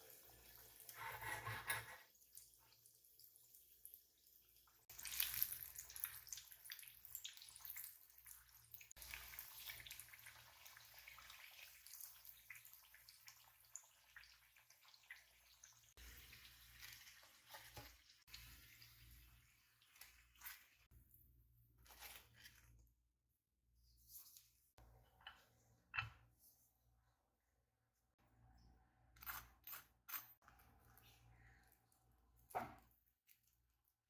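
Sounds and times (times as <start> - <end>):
tap water running and splashing: 4.5 - 20.9.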